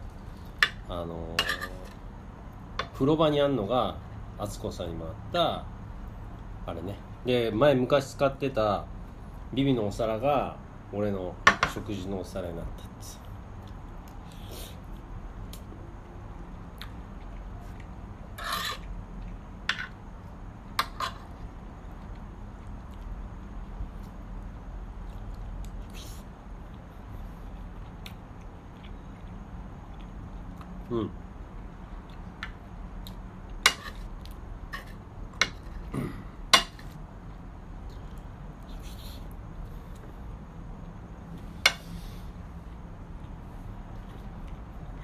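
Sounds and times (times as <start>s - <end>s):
steady low hum: 0.0s - 45.0s
tableware clinking: 1.4s - 1.9s.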